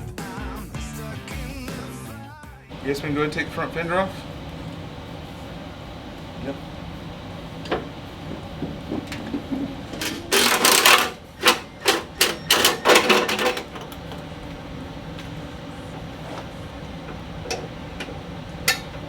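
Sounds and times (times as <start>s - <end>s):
power tool loosening bolts: 6.4s - 14.4s.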